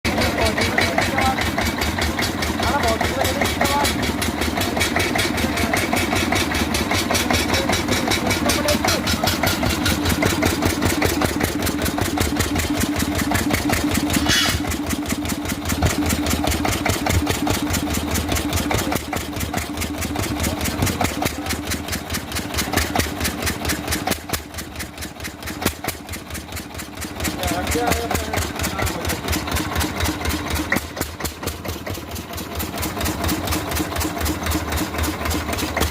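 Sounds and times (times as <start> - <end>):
single-cylinder engine running: 0.0 - 35.9.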